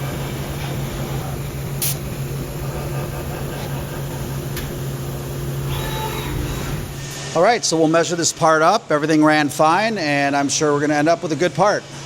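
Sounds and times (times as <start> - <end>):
milling machine humming: 0.0 - 7.2.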